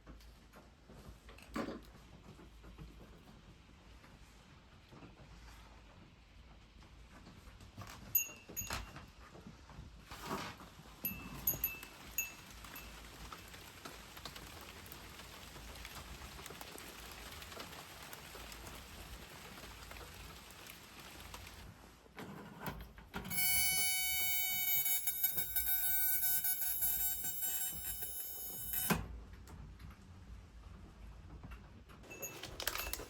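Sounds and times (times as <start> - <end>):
rain hiss: 11.0 - 21.7
loud high-pitched tone: 23.3 - 29.0.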